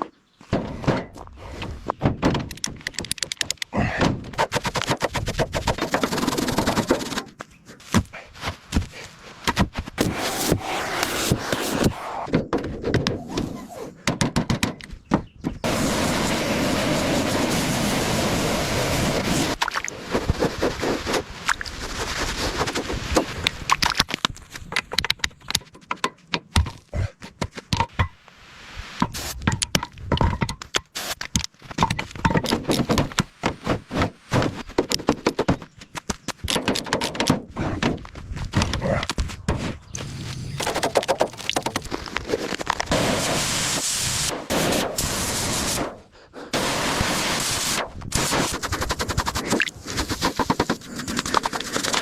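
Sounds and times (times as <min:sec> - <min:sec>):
metal parts knocking and scraping: 0:00.5 - 0:06.1, 0:29.0 - 0:33.2, 0:36.3 - 0:38.8
steady rushing noise: 0:10.0 - 0:12.3, 0:15.6 - 0:23.8.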